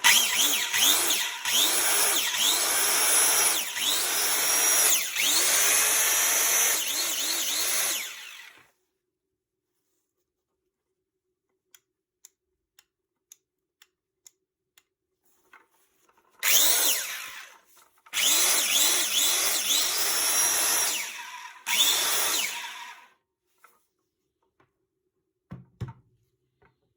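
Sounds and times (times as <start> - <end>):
circular saw motor running: 0.0 - 8.6, 16.4 - 17.6, 18.2 - 23.1.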